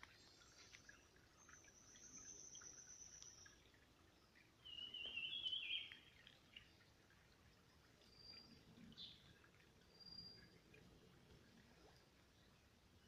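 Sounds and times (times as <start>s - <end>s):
wild birds singing: 0.2s - 6.9s.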